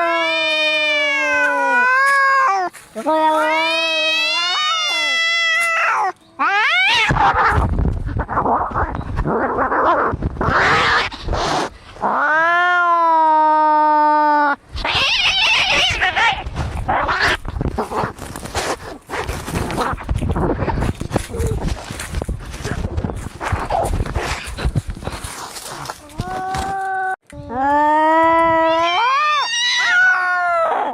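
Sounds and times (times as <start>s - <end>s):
cat yowling: 0.0s - 7.6s, 28.4s - 30.9s
cats fighting and hissing: 0.0s - 12.8s, 14.8s - 26.9s.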